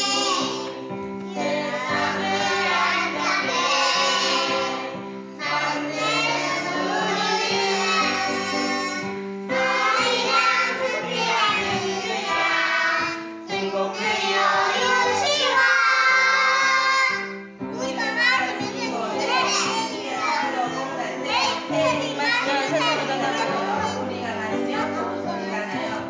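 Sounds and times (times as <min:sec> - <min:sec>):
children singing: 0:00.0 - 0:17.5
instrumental accompaniment: 0:00.0 - 0:26.0.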